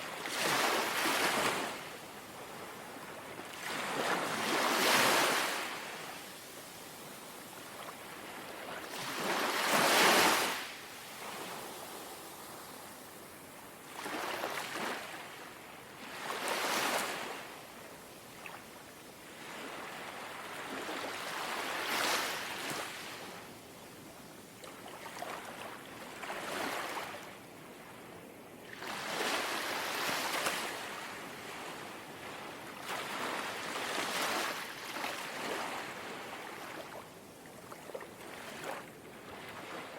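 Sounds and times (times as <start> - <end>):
sea waves lapping on shore: 3.6 - 6.1, 7.0 - 13.0.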